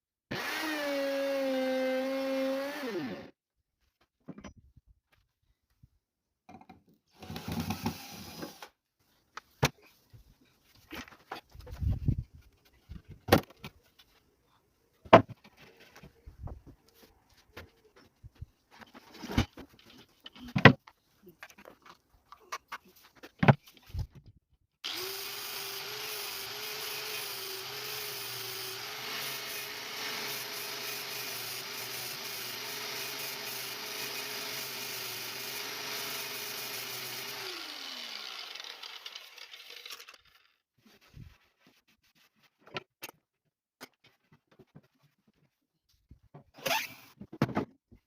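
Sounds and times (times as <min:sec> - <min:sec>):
electric power tool cutting wood: 0:00.3 - 0:03.3, 0:07.2 - 0:08.7, 0:24.8 - 0:40.5.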